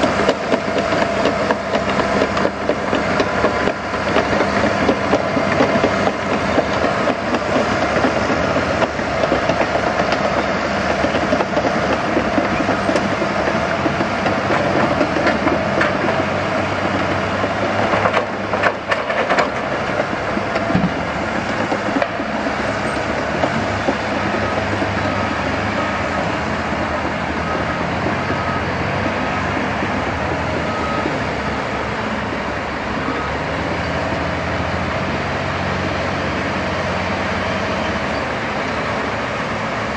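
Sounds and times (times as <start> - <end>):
heavy diesel machinery running: 0.0 - 39.9
reversing alarm beeping: 21.7 - 34.8.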